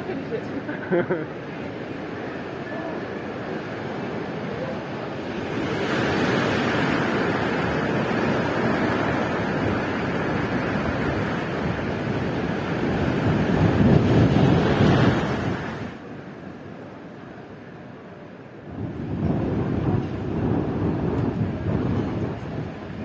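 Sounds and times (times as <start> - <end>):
ocean waves breaking: 0.0 - 17.0.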